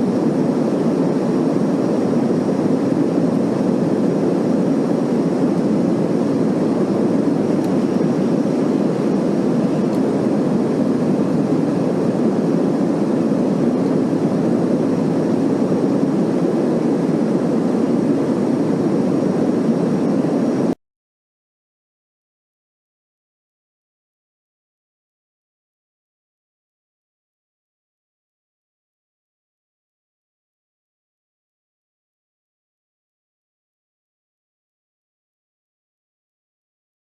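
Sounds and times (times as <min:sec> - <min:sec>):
jet airliner cabin rumble: 0:00.0 - 0:20.8.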